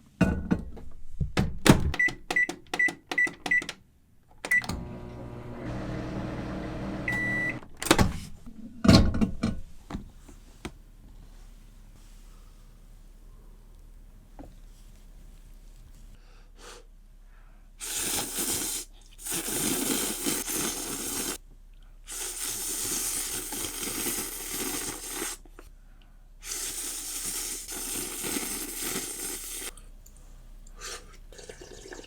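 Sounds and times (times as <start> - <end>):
noodles being slurped: 17.8 - 21.4, 22.1 - 25.5, 26.4 - 29.8.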